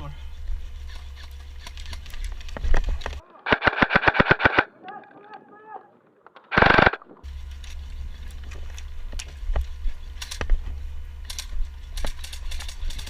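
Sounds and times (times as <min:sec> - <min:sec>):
airsoft gun burst: 0:03.4 - 0:04.7, 0:06.5 - 0:07.0
sharp cracks of shots: 0:03.5 - 0:04.7, 0:06.5 - 0:07.1.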